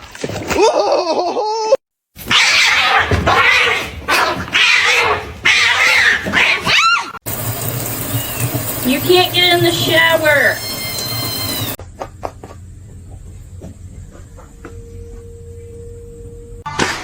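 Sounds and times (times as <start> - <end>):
cat yowling: 2.3 - 7.2.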